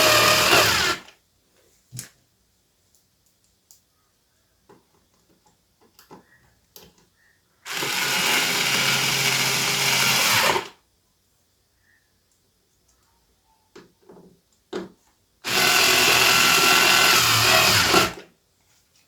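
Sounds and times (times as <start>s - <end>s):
electric screwdriver running: 0.0s - 1.0s, 7.7s - 10.7s, 15.5s - 18.2s.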